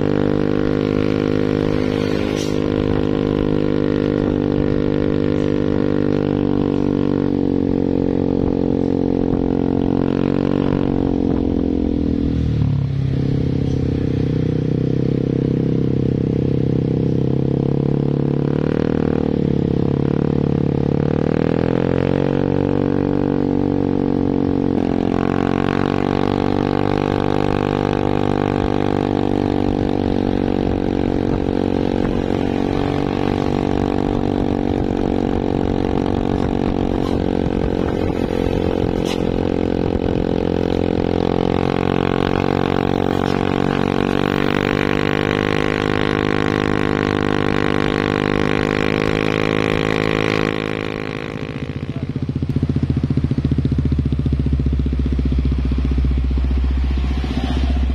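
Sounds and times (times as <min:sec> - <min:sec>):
different engine sound: 0:24.7 - 0:57.9.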